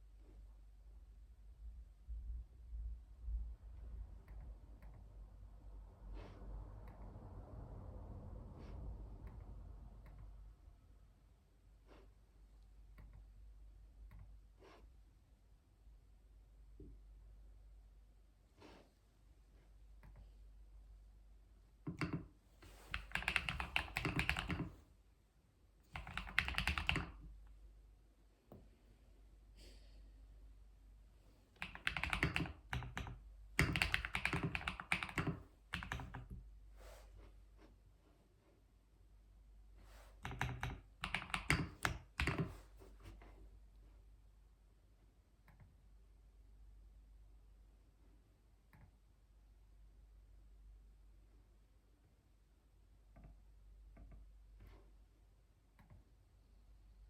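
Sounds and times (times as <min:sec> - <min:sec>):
typing on computer keyboard: 0:21.9 - 0:24.8, 0:25.9 - 0:27.3, 0:31.6 - 0:36.4, 0:40.2 - 0:42.7.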